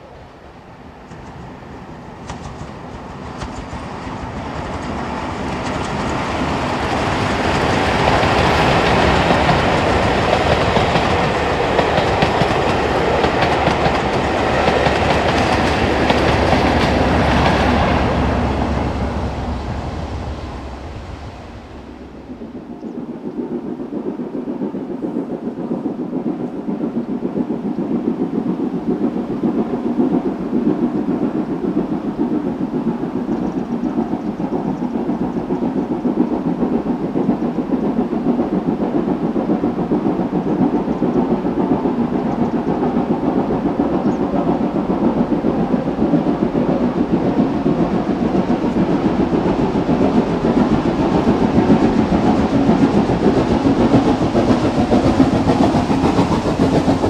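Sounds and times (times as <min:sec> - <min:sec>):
steam locomotive exhaust beat: 0:00.0 - 0:57.0.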